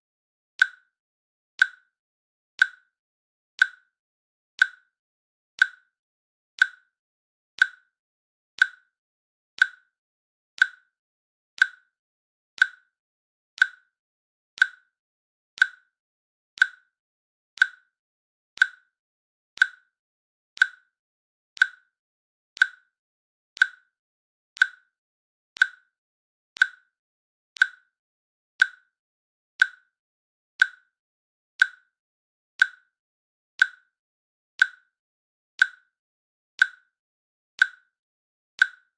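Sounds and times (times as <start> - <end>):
timer clicks: 0.6 - 0.9, 1.6 - 1.9, 2.6 - 2.9, 3.6 - 3.9, 4.6 - 4.9, 5.6 - 5.9, 6.6 - 7.0, 7.6 - 8.0, 8.6 - 9.0, 9.6 - 10.0, 10.6 - 11.0, 11.6 - 12.0, 12.6 - 13.0, 13.6 - 14.0, 14.6 - 15.0, 15.6 - 16.0, 16.6 - 17.0, 17.6 - 18.0, 18.6 - 19.0, 19.6 - 20.0, 20.6 - 21.0, 21.6 - 22.0, 22.6 - 23.0, 23.6 - 24.0, 24.6 - 25.0, 25.6 - 26.0, 26.6 - 27.0, 27.6 - 28.0, 28.6 - 29.0, 29.6 - 30.0, 30.6 - 31.0, 31.6 - 32.0, 32.6 - 33.0, 33.6 - 34.0, 34.6 - 35.0, 35.6 - 36.0, 36.6 - 37.0, 37.6 - 38.0, 38.6 - 38.9.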